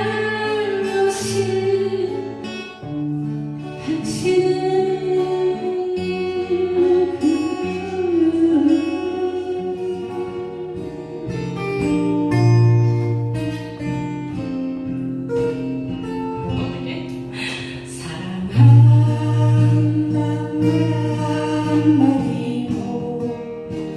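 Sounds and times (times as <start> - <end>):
person singing: 0.0 - 2.8, 3.7 - 12.5, 16.6 - 23.8
acoustic guitar playing: 0.0 - 23.9.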